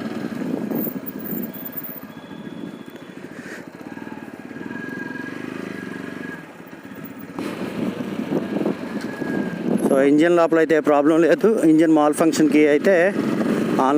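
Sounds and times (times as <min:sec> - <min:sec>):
motorcycle engine running: 0:00.0 - 0:09.8, 0:12.5 - 0:13.9.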